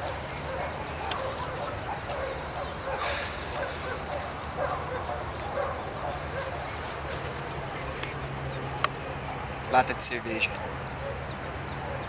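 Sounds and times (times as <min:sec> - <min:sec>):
high-pitched insect trill: 0:00.0 - 0:12.0
rustling hiss: 0:02.9 - 0:04.4.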